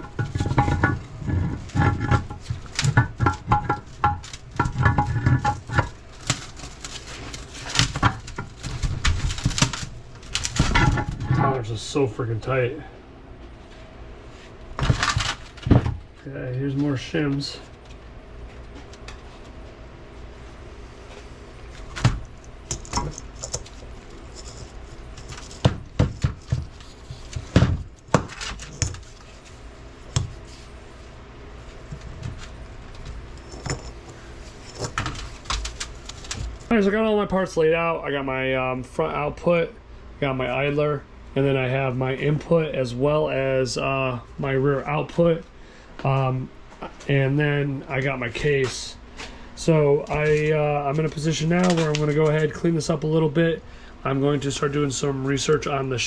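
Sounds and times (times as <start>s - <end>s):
steel parts clinking and clunking: 0.0s - 11.7s, 32.3s - 36.7s
steady low hum: 0.0s - 56.0s
metal parts clinking and knocking: 33.4s - 36.4s.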